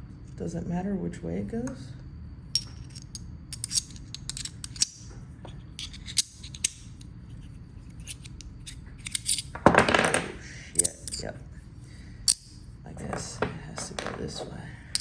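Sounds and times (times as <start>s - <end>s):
small metal parts clicking: 2.5s - 5.1s, 5.7s - 11.3s, 12.2s - 15.0s
metal parts scraping: 2.5s - 11.3s, 12.2s - 15.0s.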